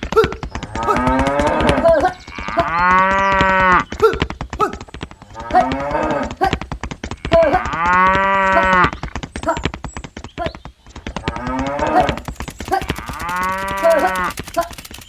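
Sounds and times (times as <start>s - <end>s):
dense rapid clicking: 0.0s - 15.0s
cow mooing: 0.7s - 3.8s, 5.4s - 6.3s, 7.2s - 8.9s, 11.3s - 12.2s, 12.8s - 14.3s.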